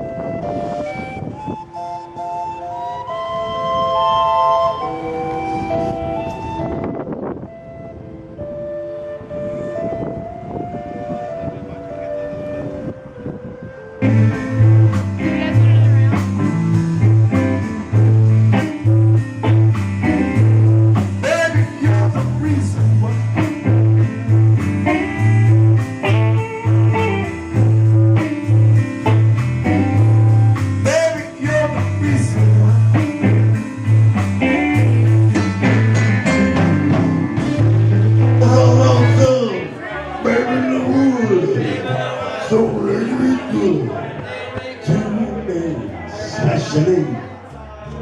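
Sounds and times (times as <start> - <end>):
blues guitar music with bass: 13.0 - 46.7.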